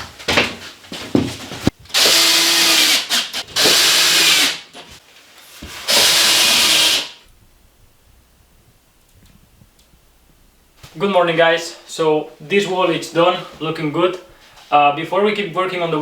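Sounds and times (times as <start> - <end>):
power drill running: 1.9 - 4.7, 5.8 - 7.2.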